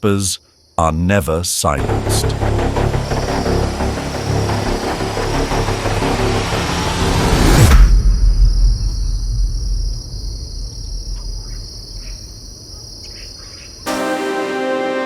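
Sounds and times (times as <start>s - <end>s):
insects chirring: 0.0s - 13.9s
music: 1.8s - 7.8s, 13.9s - 15.0s
low rumble: 1.8s - 12.4s.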